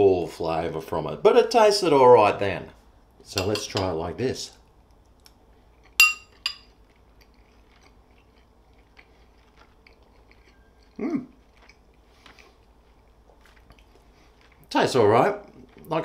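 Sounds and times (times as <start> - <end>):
spoon clinking on ceramic bowl: 3.4 - 3.9, 6.0 - 6.7
man chewing food: 4.8 - 14.7, 15.4 - 16.0
man humming mm: 11.0 - 11.3.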